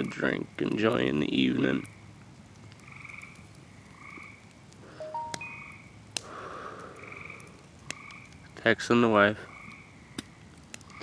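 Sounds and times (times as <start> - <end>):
frogs croaking: 1.6 - 8.5, 9.4 - 11.0
short electronic beeps: 5.0 - 5.7.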